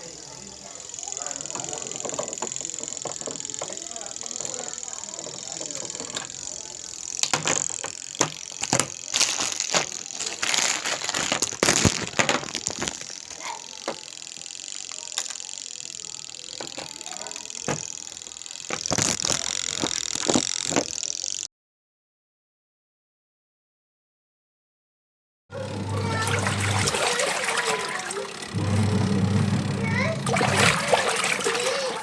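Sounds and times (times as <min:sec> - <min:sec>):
tools and parts clicking and rattling: 0:01.2 - 0:21.2.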